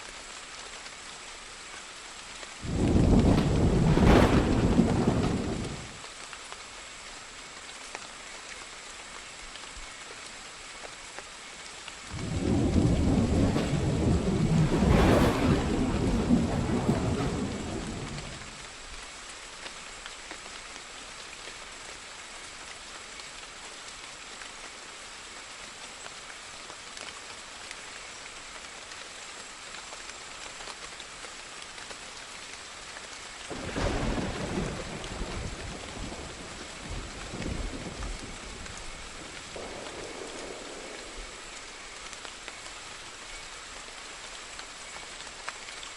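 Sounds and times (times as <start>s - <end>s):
steady rain: 0.0s - 45.9s
rolling thunder: 2.6s - 6.0s, 12.1s - 18.7s, 33.5s - 41.9s.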